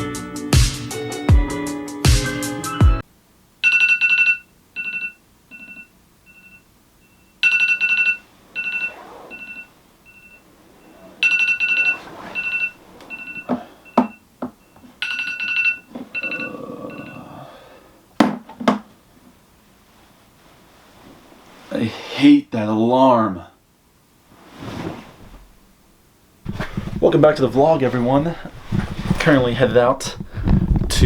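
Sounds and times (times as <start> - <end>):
electronic two-note alarm chime: 7.4 - 10.4, 11.2 - 14.2
knocks and rustles: 11.2 - 16.2, 18.2 - 19.0, 26.4 - 31.0.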